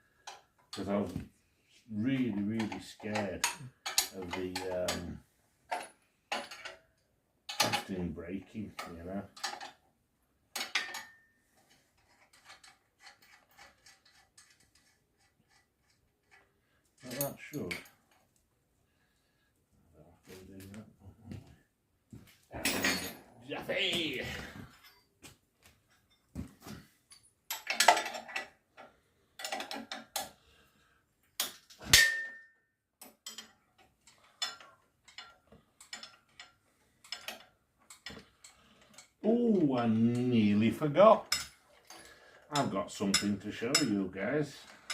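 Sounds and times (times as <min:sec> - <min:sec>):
metal tools clicking and tapping: 0:00.2 - 0:01.0, 0:02.4 - 0:09.8, 0:10.5 - 0:18.3, 0:25.8 - 0:30.4, 0:31.2 - 0:44.9
loud metallic clank: 0:31.8 - 0:32.4
metal clink with ring: 0:31.8 - 0:32.6.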